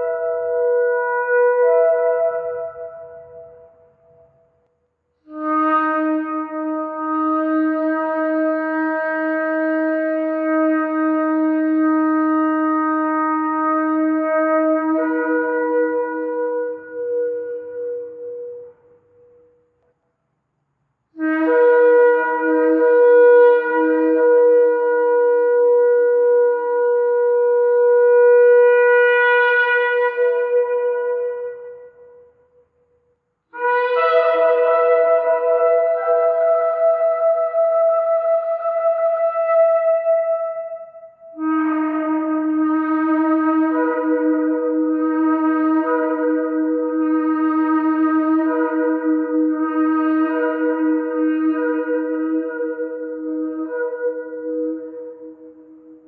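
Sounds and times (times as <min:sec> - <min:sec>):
shofar blast: 0:00.0 - 0:04.3, 0:21.2 - 0:32.3, 0:33.5 - 0:56.0.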